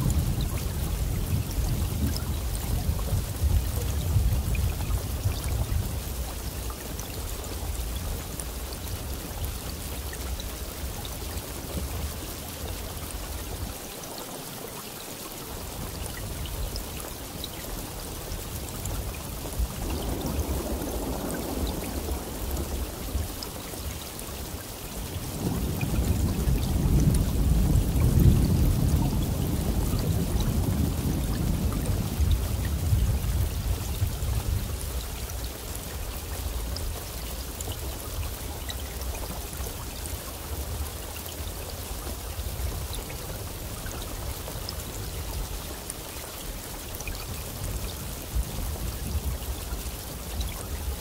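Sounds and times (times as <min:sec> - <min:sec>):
steady rain falling: 0:00.0 - 0:51.0
thunder rumbling: 0:19.2 - 0:23.8, 0:25.2 - 0:34.9.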